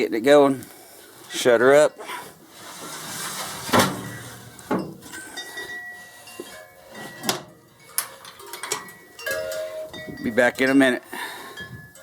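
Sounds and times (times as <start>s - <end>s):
metal door clanking shut: 3.2s - 5.1s.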